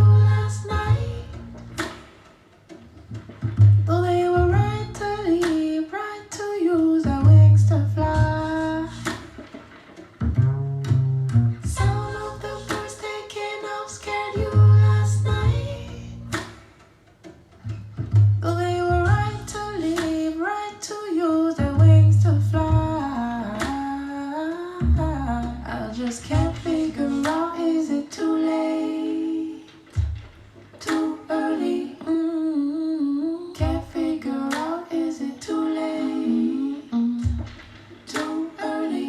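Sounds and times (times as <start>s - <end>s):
low bass notes: 0.0s - 1.9s, 3.1s - 5.4s, 7.1s - 9.2s, 10.2s - 12.7s, 14.4s - 16.4s, 17.6s - 20.0s, 21.6s - 23.6s, 24.8s - 27.3s
person humming a melody: 36.0s - 37.5s.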